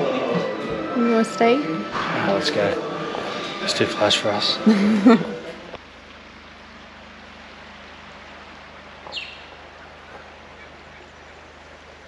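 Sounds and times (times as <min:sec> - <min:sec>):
bird call falling in pitch: 0:09.1 - 0:11.1.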